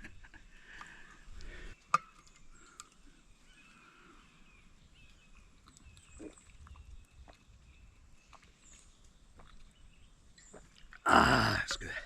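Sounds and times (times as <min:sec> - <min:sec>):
man breathing: 0:00.6 - 0:01.8
man swallowing water: 0:10.4 - 0:12.0.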